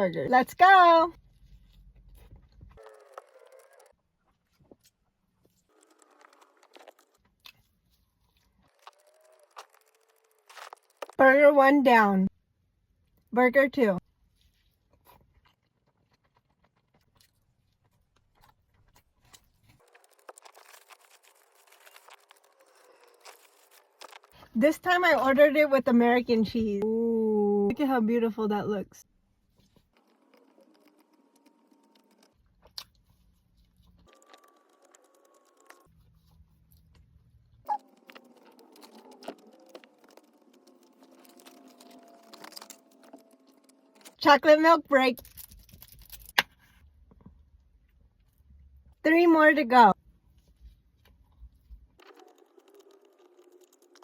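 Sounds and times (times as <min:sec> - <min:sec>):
person chewing food: 0:01.3 - 0:11.2, 0:14.3 - 0:24.4, 0:52.0 - 0:54.0.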